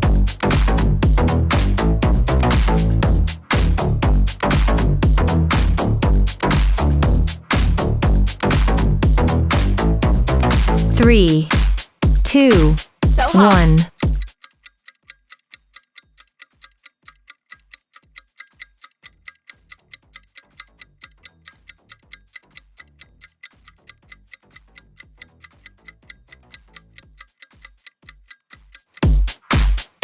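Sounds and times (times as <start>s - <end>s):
steady timer ticking: 10.3s - 30.0s
soft low beat: 10.9s - 14.3s.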